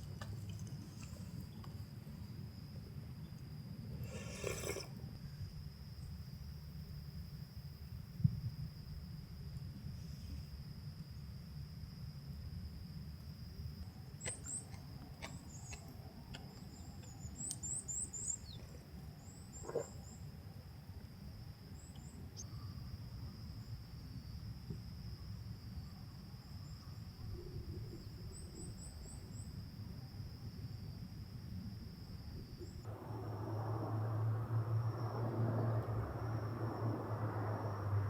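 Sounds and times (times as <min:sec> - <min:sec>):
insect trill: 0:00.0 - 0:38.0
low rumble: 0:32.9 - 0:38.0.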